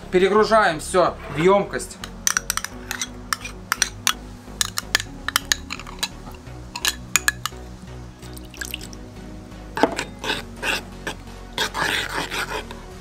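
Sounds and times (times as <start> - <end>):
background music: 0.0 - 13.0
spoon clinking on dishes: 2.0 - 6.2, 6.8 - 7.6.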